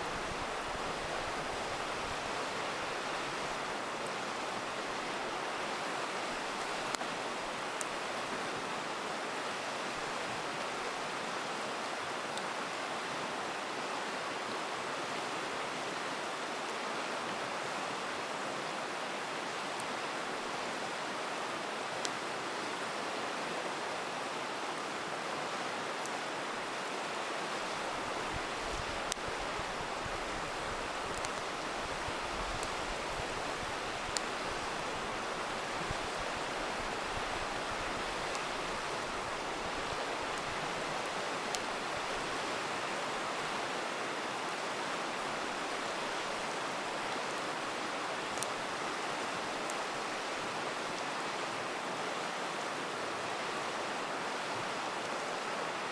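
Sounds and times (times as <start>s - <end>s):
river rushing: 0.0s - 55.9s
campfire crackling and popping: 27.6s - 42.3s.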